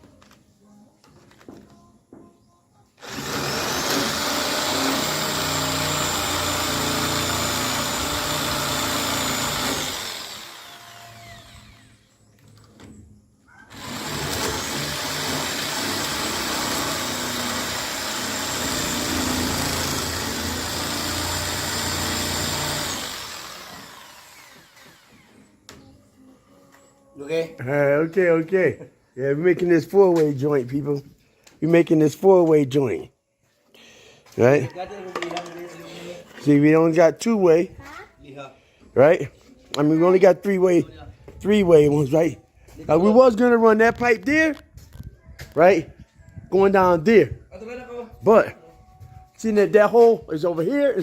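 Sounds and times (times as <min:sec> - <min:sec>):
electric power tool whining: 0:03.0 - 0:12.2, 0:13.7 - 0:25.6.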